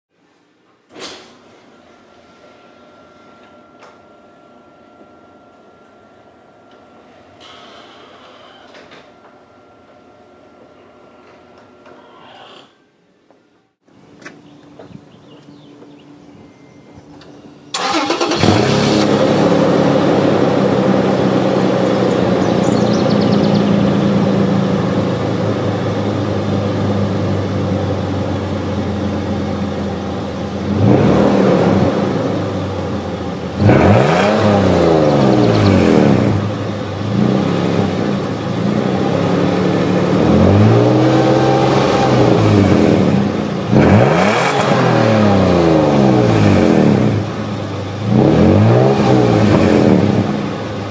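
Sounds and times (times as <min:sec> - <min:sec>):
car engine idling and revving: 0:17.7 - 0:50.9.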